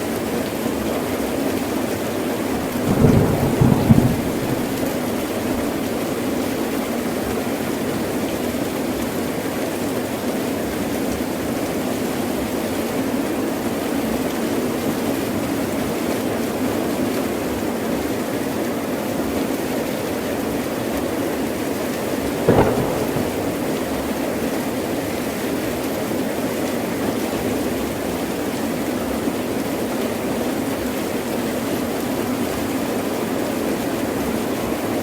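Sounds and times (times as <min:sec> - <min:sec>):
heavy rain falling: 0:01.8 - 0:06.6, 0:22.3 - 0:24.6
thunder rumble: 0:02.5 - 0:06.0, 0:22.4 - 0:24.4.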